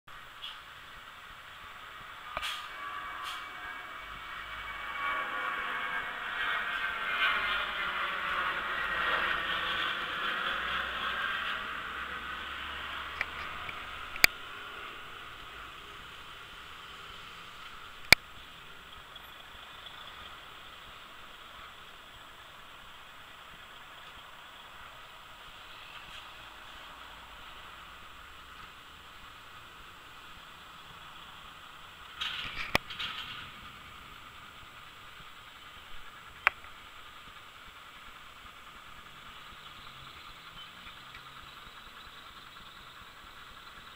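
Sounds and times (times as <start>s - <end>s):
jet engine hiss on takeoff: 0.1s - 6.4s, 7.2s - 43.9s.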